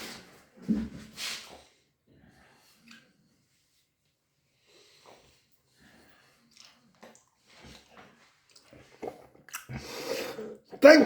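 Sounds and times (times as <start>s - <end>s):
person chewing: 6.5s - 10.2s.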